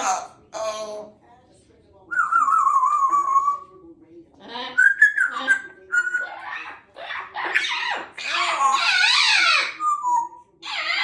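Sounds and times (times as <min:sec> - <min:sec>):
parrot whistling and chattering: 0:02.1 - 0:03.7, 0:04.7 - 0:11.0.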